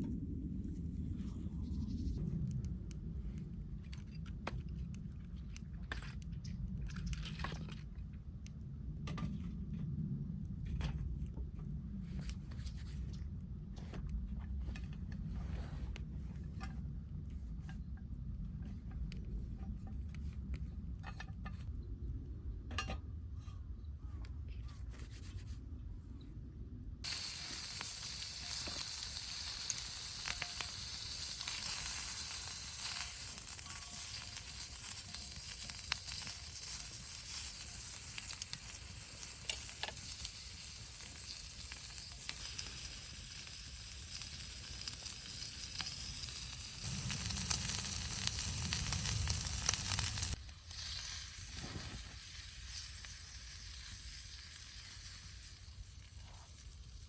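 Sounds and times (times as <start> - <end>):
food sizzling in frying pan: 27.0 - 56.7.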